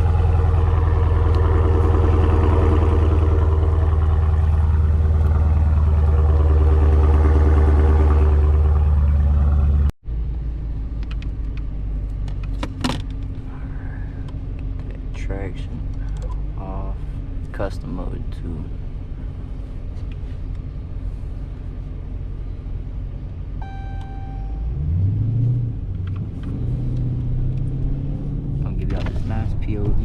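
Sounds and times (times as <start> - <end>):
car engine idling: 0.0 - 24.9
steady engine hum: 0.0 - 30.0.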